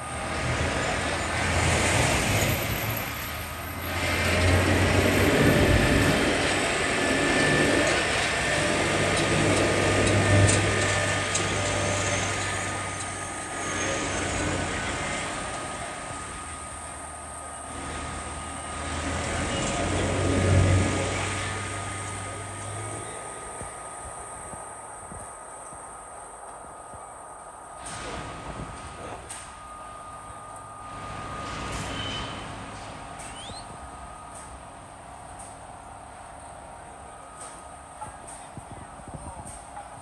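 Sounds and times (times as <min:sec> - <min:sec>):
train wheels rumbling on rail: 0:00.0 - 0:27.1, 0:27.8 - 0:40.0
street traffic: 0:00.0 - 0:40.0.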